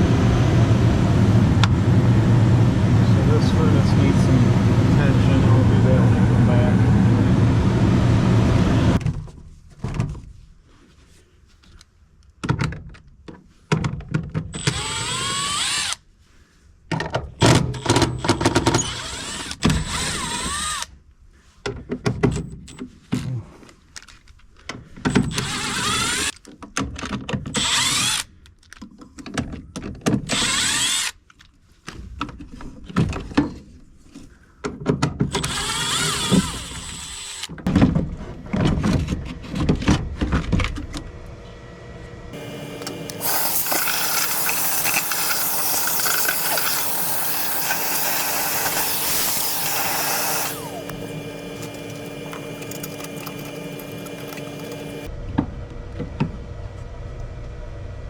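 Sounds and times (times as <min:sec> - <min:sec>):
cordless drill whining in bursts: 0:14.6 - 0:16.0, 0:18.5 - 0:20.9, 0:25.1 - 0:26.4, 0:27.6 - 0:28.3, 0:30.3 - 0:31.2, 0:35.3 - 0:37.5, 0:42.4 - 0:55.1.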